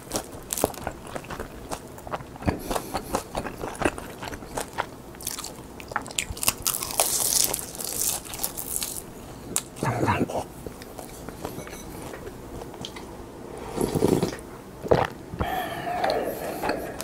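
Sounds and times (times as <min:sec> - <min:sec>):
crunching crisp seaweed: 0:00.0 - 0:01.9, 0:02.8 - 0:09.7.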